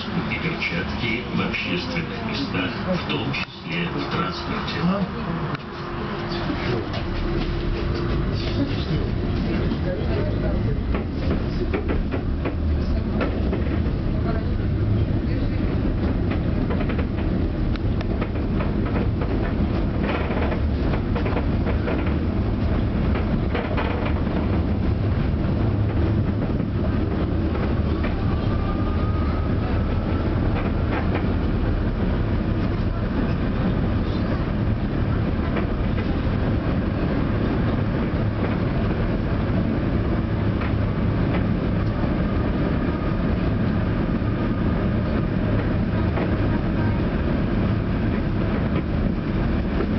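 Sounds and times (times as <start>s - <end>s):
tram wheels rumbling on rails: 0.0s - 49.9s
clicks over rail joints: 23.1s - 24.6s.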